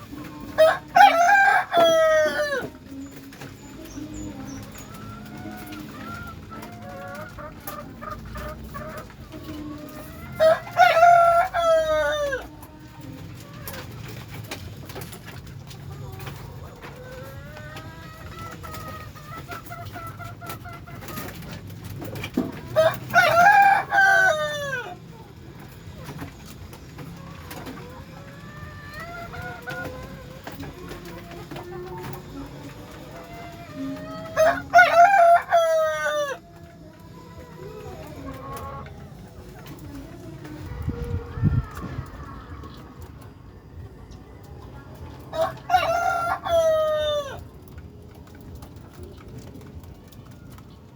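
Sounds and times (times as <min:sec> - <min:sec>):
rooster crowing: 0:00.6 - 0:02.8, 0:10.4 - 0:12.4, 0:22.8 - 0:25.0, 0:33.7 - 0:36.5, 0:45.3 - 0:47.4.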